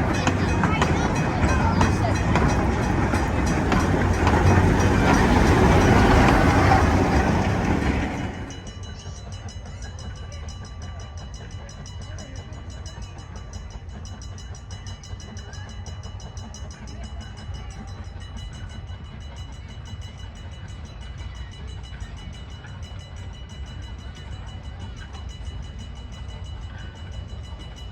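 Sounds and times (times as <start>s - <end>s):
train running on rails: 0.0s - 27.9s.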